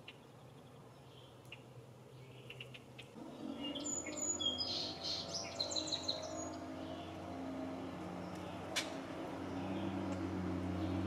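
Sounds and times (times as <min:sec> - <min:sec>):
songbirds chirping: 0:00.0 - 0:11.0
low engine hum: 0:03.2 - 0:11.0.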